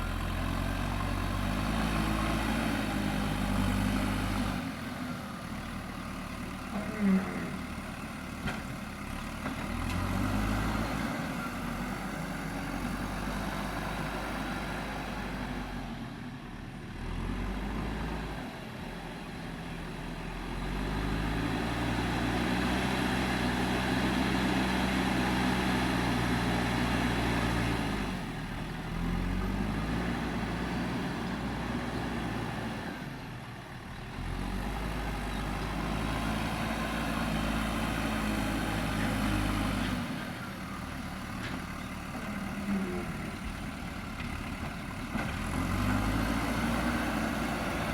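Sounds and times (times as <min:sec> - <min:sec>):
diesel engine under load: 0:00.0 - 0:47.9.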